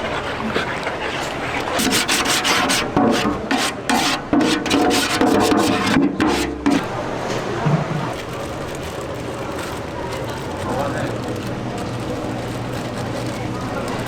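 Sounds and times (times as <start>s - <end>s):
scraping against hard surface: 0.0s - 7.0s.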